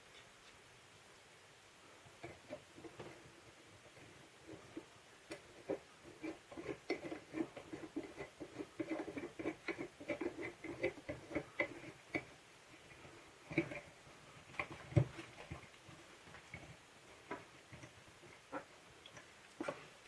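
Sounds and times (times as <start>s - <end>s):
plastic parts clicking and knocking: 3.9s - 19.9s.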